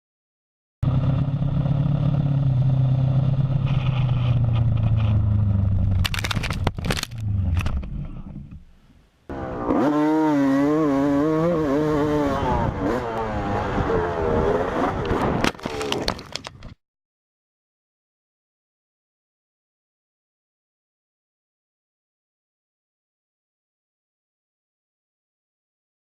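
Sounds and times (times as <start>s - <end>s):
motorcycle engine running: 0.8s - 6.1s
engine with wavering pitch: 0.8s - 8.3s, 9.3s - 15.4s
clatter of knocks and scrapes: 3.6s - 5.2s, 15.4s - 16.8s.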